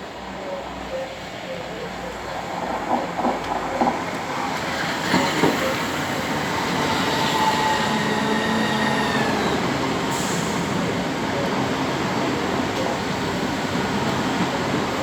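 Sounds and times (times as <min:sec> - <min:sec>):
electric train whine: 0:00.0 - 0:15.0
train knocks: 0:02.5 - 0:11.0.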